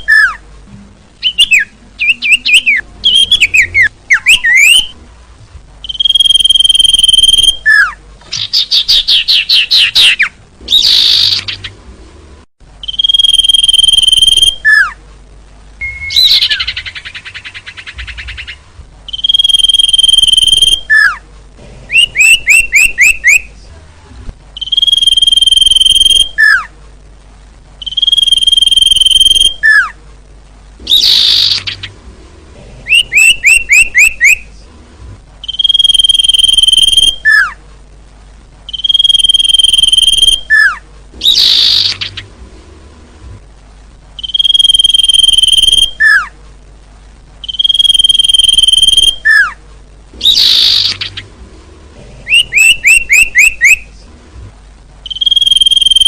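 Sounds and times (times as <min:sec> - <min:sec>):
high whistled bird call: 0:01.2 - 0:05.0, 0:05.8 - 0:11.6, 0:12.8 - 0:15.0, 0:15.8 - 0:21.2, 0:21.9 - 0:23.5, 0:24.6 - 0:26.7, 0:27.8 - 0:30.0, 0:30.9 - 0:31.9, 0:32.9 - 0:34.5, 0:35.4 - 0:37.6, 0:38.7 - 0:42.2, 0:44.2 - 0:46.3, 0:47.4 - 0:49.6, 0:50.2 - 0:51.2, 0:52.3 - 0:53.9, 0:55.1 - 0:56.0
rapid trilled bird chirps: 0:01.2 - 0:05.0, 0:05.8 - 0:11.8, 0:12.8 - 0:15.0, 0:15.8 - 0:21.2, 0:22.0 - 0:23.5, 0:24.6 - 0:26.7, 0:27.8 - 0:29.9, 0:30.9 - 0:32.0, 0:32.9 - 0:34.5, 0:35.4 - 0:37.6, 0:38.7 - 0:42.3, 0:44.2 - 0:46.3, 0:47.4 - 0:49.6, 0:50.2 - 0:51.3, 0:52.3 - 0:53.9, 0:55.0 - 0:56.0.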